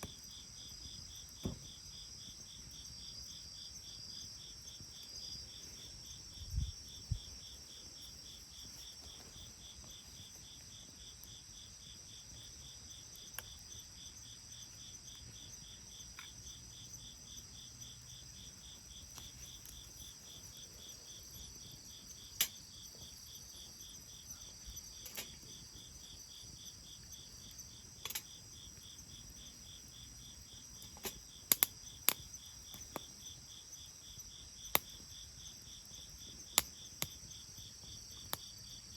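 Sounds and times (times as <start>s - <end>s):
insects trilling: 0.0s - 38.9s
wood fire crackling: 17.2s - 38.9s.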